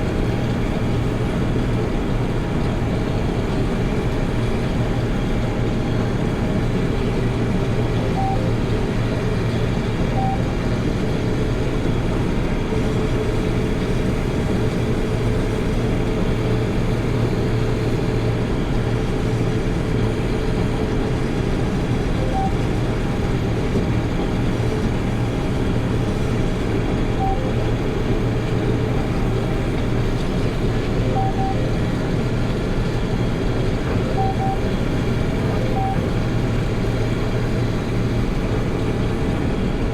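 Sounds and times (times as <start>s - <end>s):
combine harvester engine and threshing drone: 0.0s - 39.9s.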